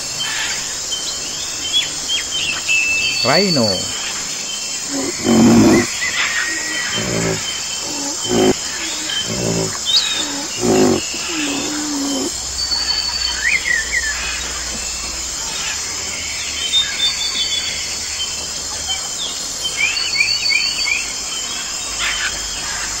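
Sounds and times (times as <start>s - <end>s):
birds chirping: 3.0s - 14.6s
deep animal calls: 3.2s - 4.0s, 4.9s - 12.4s.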